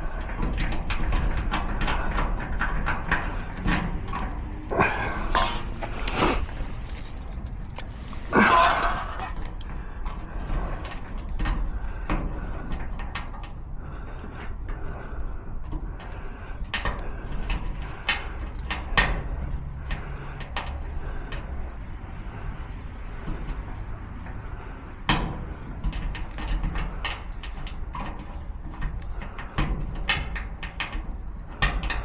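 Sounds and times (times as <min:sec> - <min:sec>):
lock-picking tools clicking and scraping: 0:03.4 - 0:11.2.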